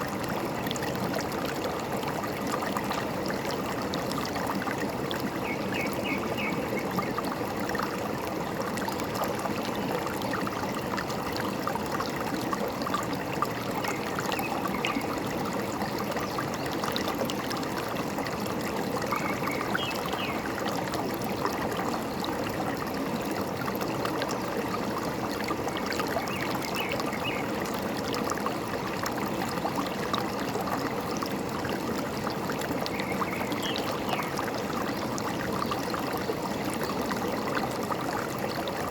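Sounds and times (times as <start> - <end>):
stream babbling: 0.0 - 38.9.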